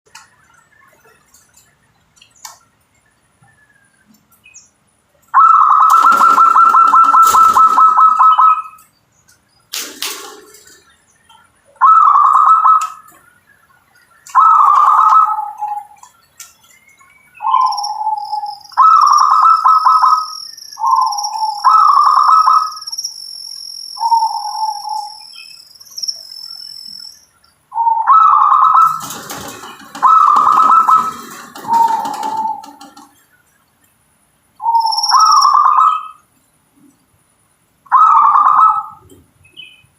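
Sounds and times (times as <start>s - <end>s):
dove cooing: 5.4s - 8.7s, 11.8s - 13.2s, 14.3s - 16.0s, 17.4s - 20.2s, 20.8s - 22.7s, 24.0s - 25.2s, 27.7s - 33.2s, 37.9s - 39.2s.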